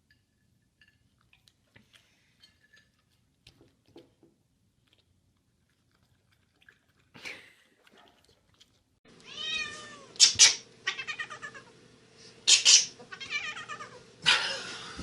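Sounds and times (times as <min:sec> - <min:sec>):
cat meowing: 0:09.2 - 0:11.7, 0:13.1 - 0:14.0.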